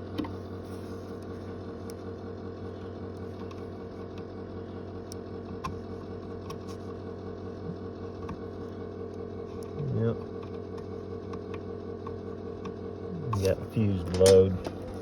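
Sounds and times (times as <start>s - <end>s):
bus engine idling: 13.3s - 15.0s.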